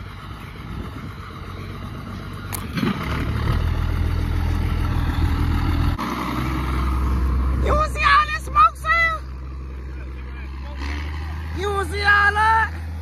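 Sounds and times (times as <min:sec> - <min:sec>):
engine running hum: 0:00.0 - 0:13.0.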